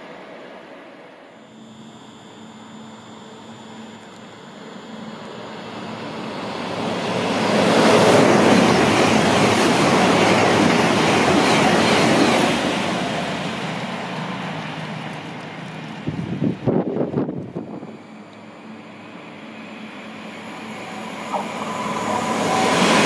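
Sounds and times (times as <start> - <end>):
train rushing past: 6.0 - 17.8, 19.0 - 23.0.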